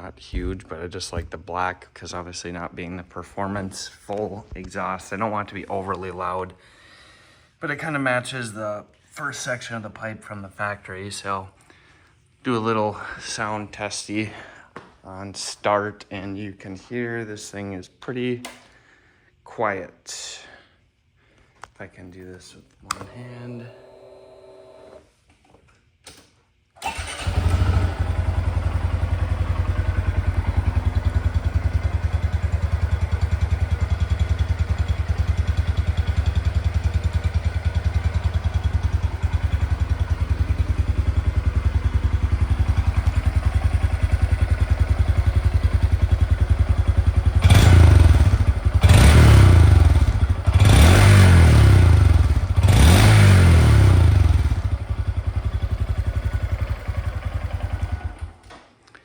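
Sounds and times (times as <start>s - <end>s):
motorcycle engine idling and revving: 26.8s - 58.4s.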